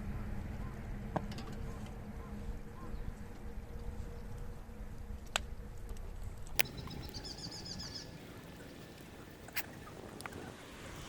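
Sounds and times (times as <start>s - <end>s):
steady low noise: 0.0s - 11.0s
small bird trilling: 6.6s - 8.8s.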